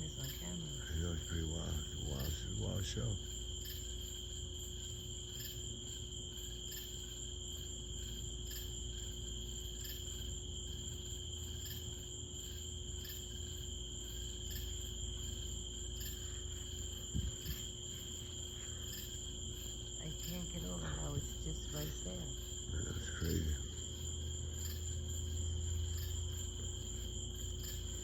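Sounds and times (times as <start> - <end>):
low steady rumble: 0.0 - 3.6, 13.4 - 28.0
insects trilling: 0.0 - 28.0.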